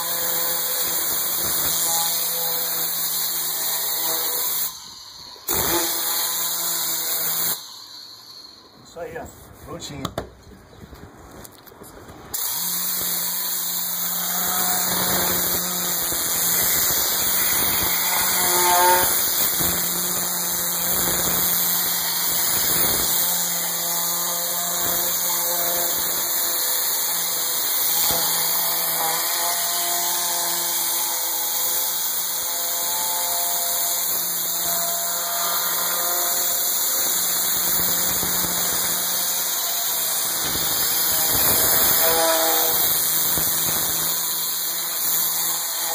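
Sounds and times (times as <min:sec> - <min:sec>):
steam spray hissing: 0:12.4 - 0:23.4.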